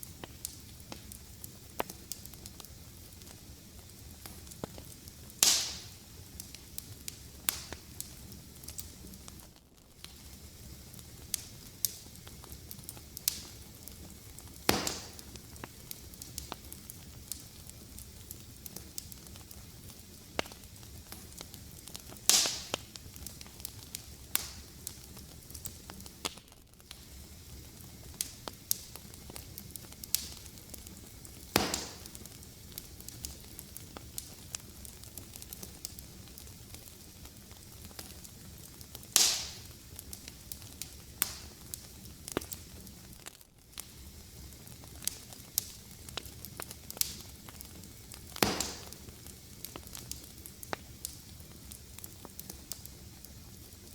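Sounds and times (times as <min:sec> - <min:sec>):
fireplace fire crackling: 0:00.0 - 0:53.9.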